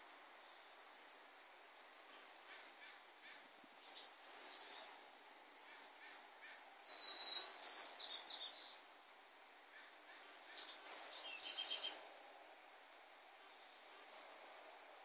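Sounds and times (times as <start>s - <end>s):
outdoor background noise: 0.0s - 15.0s
small birds calling: 2.4s - 5.0s, 5.6s - 8.9s, 9.6s - 12.4s.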